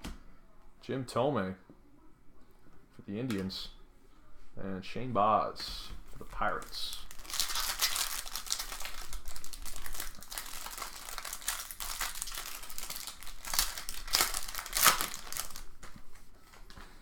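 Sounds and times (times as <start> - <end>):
card wrapper crinkling and tearing: 6.4 - 16.0.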